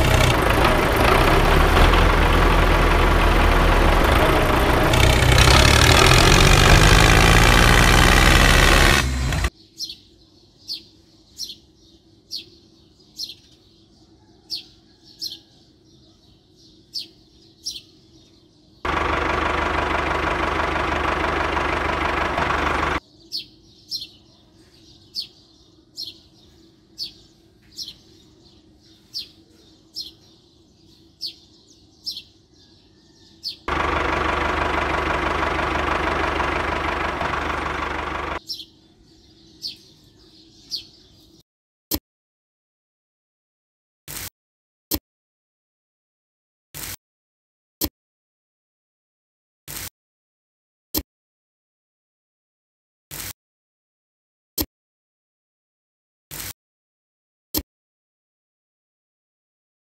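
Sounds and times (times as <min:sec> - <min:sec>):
tractor engine running: 0:00.0 - 0:09.5, 0:18.9 - 0:23.0, 0:33.7 - 0:38.4
bird chirping: 0:09.1 - 0:18.9, 0:22.9 - 0:34.0, 0:37.4 - 0:41.4.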